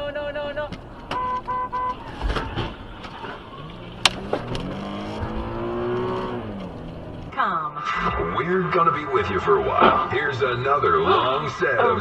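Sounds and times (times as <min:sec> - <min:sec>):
car horn blasts: 0:01.1 - 0:02.1
vehicle engine speeding up: 0:03.5 - 0:09.7.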